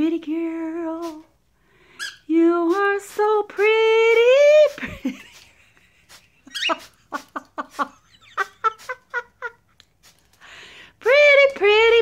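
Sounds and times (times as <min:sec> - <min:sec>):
cockatiel chirping: 0:02.0 - 0:02.3, 0:06.5 - 0:06.9.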